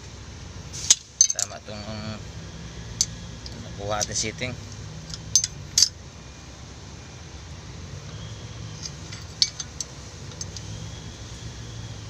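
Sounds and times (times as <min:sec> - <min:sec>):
steady low hum: 0:00.0 - 0:12.0
metallic clinks of tools: 0:05.1 - 0:06.0, 0:08.7 - 0:10.8.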